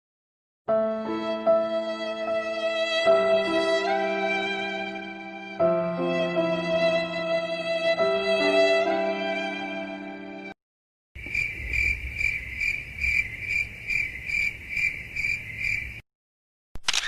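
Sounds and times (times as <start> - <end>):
cricket chirping: 11.2 - 16.0.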